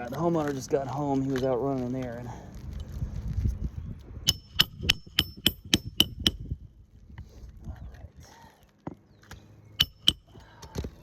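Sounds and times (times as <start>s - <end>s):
hammer driving nails with metallic ring: 4.2s - 6.4s, 9.8s - 10.4s.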